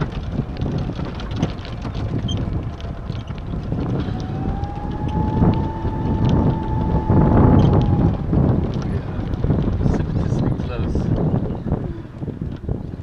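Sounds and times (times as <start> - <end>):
clicks and rattles: 0.0 - 5.6
wind buffeting microphone: 0.0 - 13.0
steady high whine: 2.9 - 10.4.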